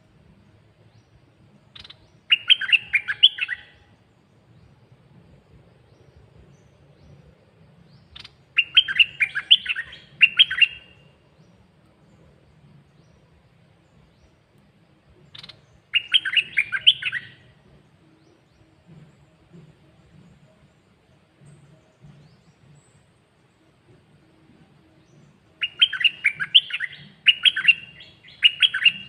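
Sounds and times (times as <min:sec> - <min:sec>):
bird singing warbling phrases: 0:01.1 - 0:04.0, 0:08.0 - 0:11.6, 0:15.2 - 0:18.7, 0:25.1 - 0:29.0.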